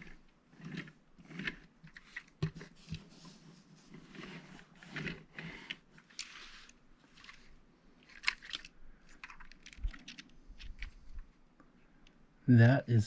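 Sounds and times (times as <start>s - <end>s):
plastic bricks clicking together: 8.0s - 11.0s.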